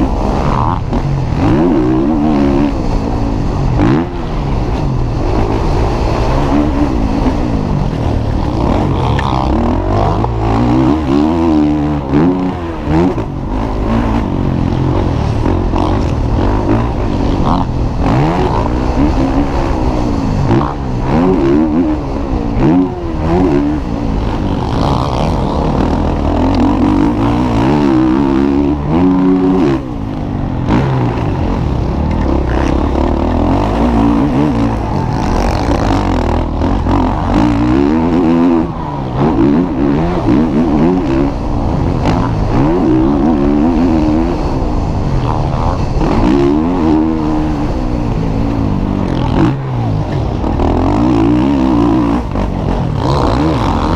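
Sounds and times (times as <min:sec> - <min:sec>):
motocross bike engines revving: 0:00.0 - 0:53.9.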